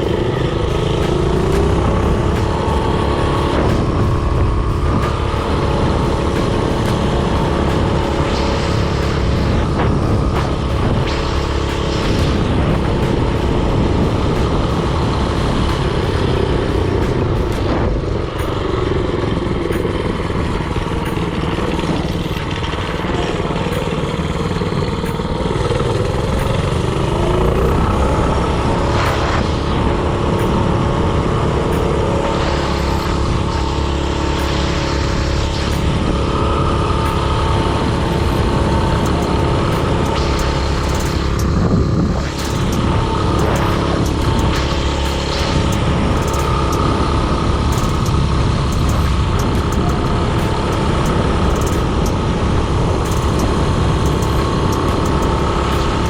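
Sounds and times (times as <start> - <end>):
mini-bike engine running: 35.4 - 56.0.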